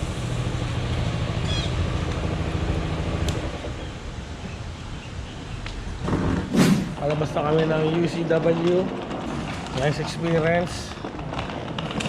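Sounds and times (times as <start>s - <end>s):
vehicle engine running: 0.0s - 4.6s.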